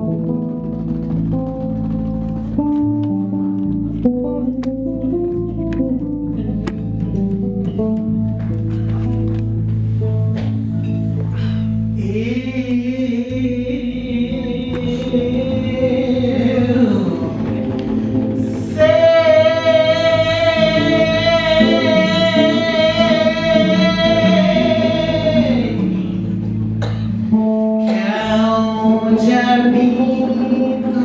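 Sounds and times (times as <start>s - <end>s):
sustained musical accompaniment: 0.0s - 31.0s
person singing long wordless notes: 11.3s - 31.0s.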